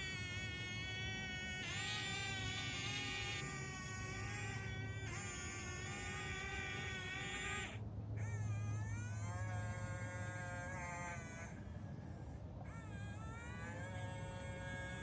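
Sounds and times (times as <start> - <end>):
toy electric motor whining: 0.0 - 15.0.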